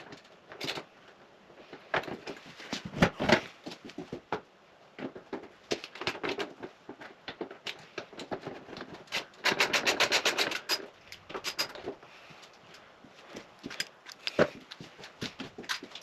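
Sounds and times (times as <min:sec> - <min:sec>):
hand tools knocking and clicking: 0:04.0 - 0:12.0.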